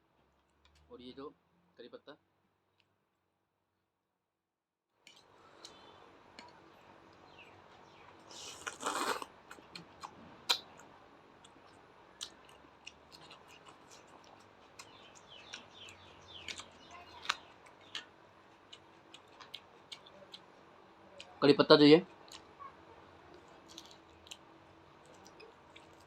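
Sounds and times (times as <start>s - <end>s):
person chewing and crunching food: 5.1s - 21.3s, 23.3s - 26.0s.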